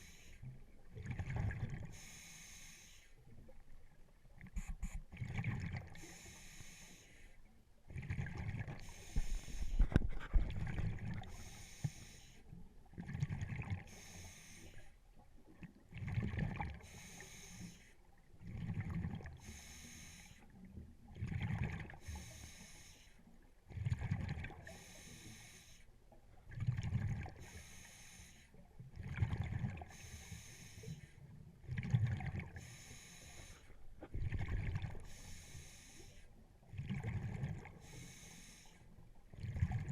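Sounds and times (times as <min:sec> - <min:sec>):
hissing regulator inhale: 0:01.9 - 0:03.2, 0:06.0 - 0:07.4, 0:08.8 - 0:10.0, 0:11.2 - 0:12.5, 0:13.9 - 0:15.0, 0:16.8 - 0:18.0, 0:19.4 - 0:20.5, 0:22.0 - 0:23.2, 0:24.6 - 0:25.9, 0:27.4 - 0:28.6, 0:29.9 - 0:31.2, 0:32.6 - 0:33.8, 0:35.0 - 0:36.3, 0:37.8 - 0:38.9.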